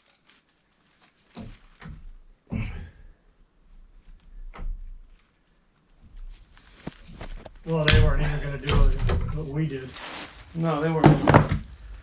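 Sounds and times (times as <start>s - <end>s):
dull knocks and thumps: 6.6s - 9.6s.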